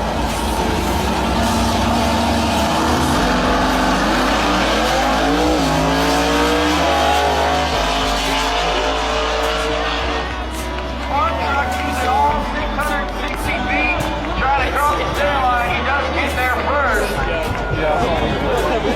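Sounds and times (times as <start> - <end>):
car engine accelerating: 0.0 - 18.9.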